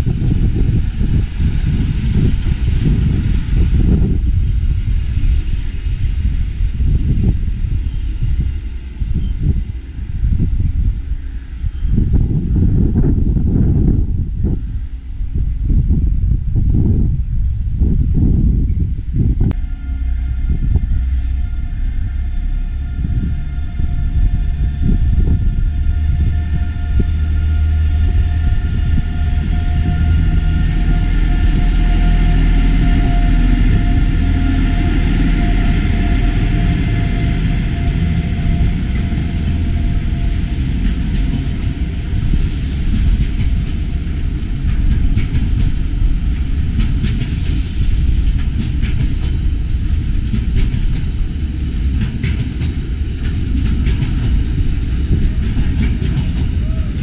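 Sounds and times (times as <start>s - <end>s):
diesel train engine rumble: 0.0s - 57.0s
droning tone: 18.9s - 46.8s.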